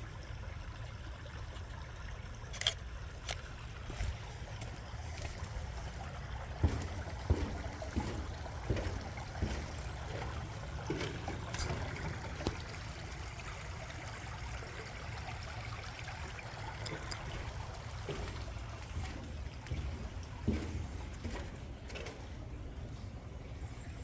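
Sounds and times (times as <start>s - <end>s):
water trickling: 0.0s - 24.0s
footsteps on metal footbridge: 3.3s - 13.5s, 16.6s - 23.2s.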